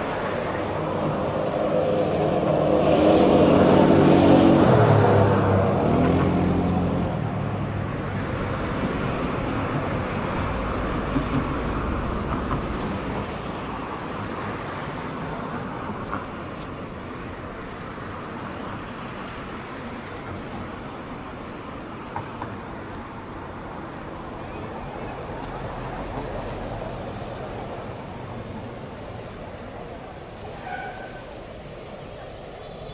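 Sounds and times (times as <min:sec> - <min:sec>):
steady traffic hum: 0:00.0 - 0:32.9
vehicle engine close by: 0:02.1 - 0:13.0.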